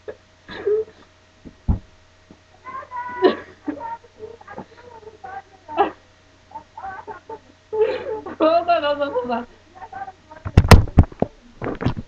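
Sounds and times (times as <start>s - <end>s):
dull thump: 1.4s - 2.0s.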